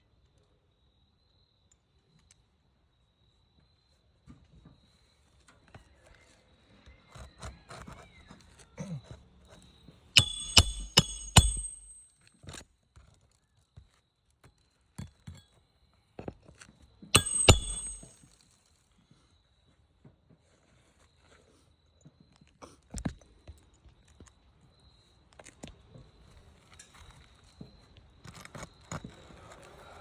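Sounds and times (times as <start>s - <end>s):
hammer driving nails: 10.2s - 12.0s, 17.2s - 18.2s.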